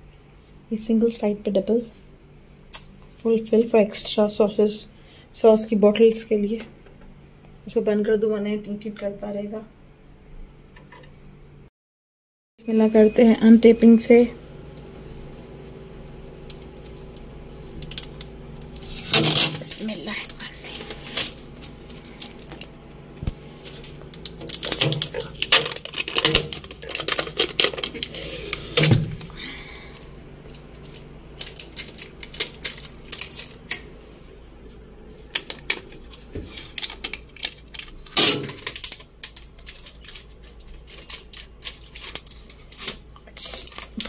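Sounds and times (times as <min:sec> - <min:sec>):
packing tape ripping off: 0:17.1 - 0:29.4, 0:30.0 - 0:33.9, 0:35.2 - 0:44.0.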